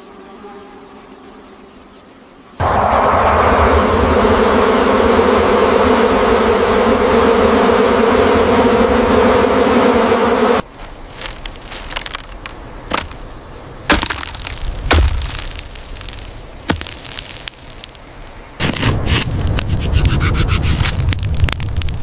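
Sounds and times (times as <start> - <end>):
bees buzzing: 0.0 - 18.6
crackling with sharp snaps: 11.1 - 13.2, 13.9 - 22.0.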